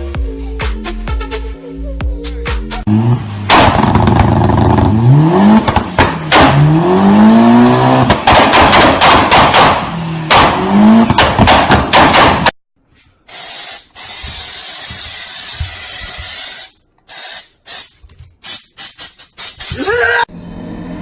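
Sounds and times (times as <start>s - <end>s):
race car engine revving: 2.9s - 12.0s
sharp knocks: 8.1s - 12.5s.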